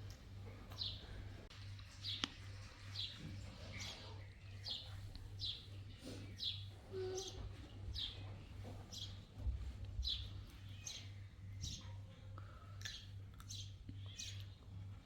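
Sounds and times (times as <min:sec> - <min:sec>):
small bird chirping: 0:10.0 - 0:12.0, 0:12.9 - 0:14.6.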